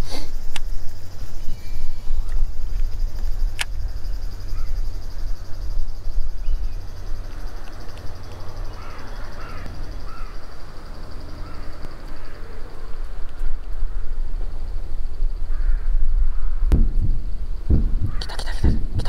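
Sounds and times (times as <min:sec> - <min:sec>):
bird calls: 0:01.2 - 0:12.9
low rumble on microphone: 0:13.0 - 0:19.0.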